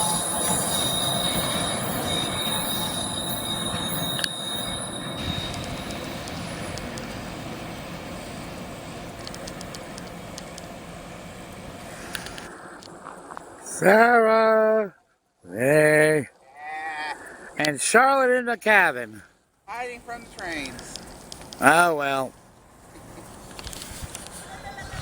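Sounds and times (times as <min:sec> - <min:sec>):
train wheels squealing: 0:00.0 - 0:08.5, 0:24.4 - 0:25.0
train rumbling past: 0:00.0 - 0:13.8, 0:19.8 - 0:25.0.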